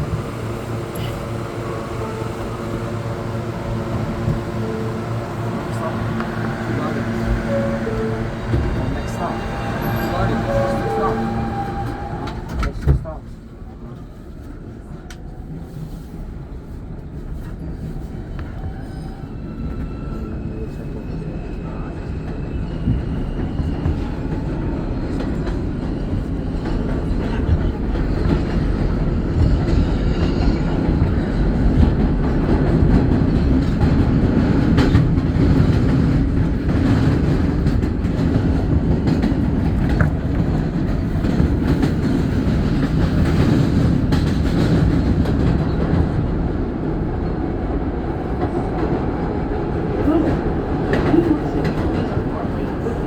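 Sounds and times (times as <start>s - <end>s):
rail joint clicks: 0.0s - 13.2s, 22.9s - 47.5s
wheels rumbling on rail: 0.0s - 53.0s.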